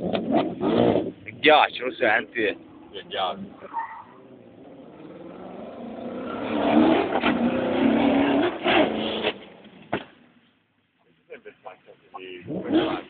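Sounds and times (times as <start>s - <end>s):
rally car engine revving: 0.0s - 1.4s, 2.2s - 9.7s, 12.4s - 13.0s
engine crackles: 0.0s - 10.2s.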